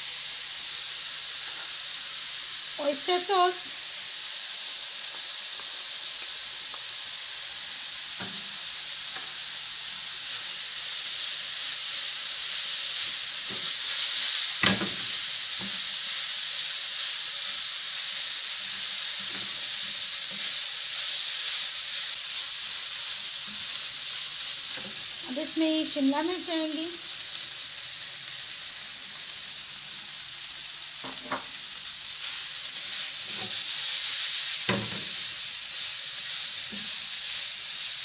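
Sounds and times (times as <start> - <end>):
filling sizzling in a frying pan: 0.0 - 38.0.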